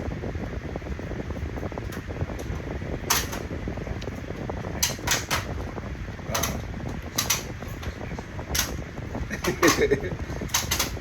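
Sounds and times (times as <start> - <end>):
fan-like hum: 0.0 - 11.0
sharp clicks and knocks: 1.9 - 8.8, 9.4 - 11.0.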